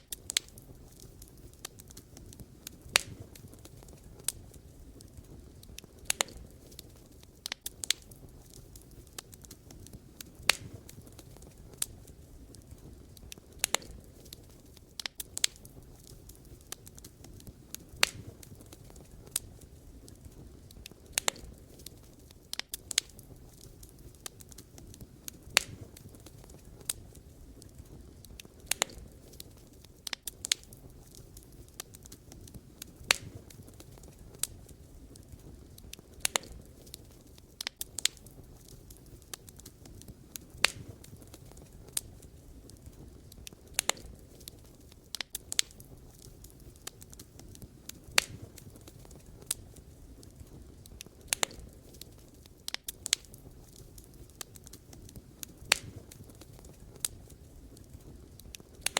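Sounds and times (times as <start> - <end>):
fire popping and snapping: 0.0 - 58.9
wood fire crackling: 0.0 - 58.9.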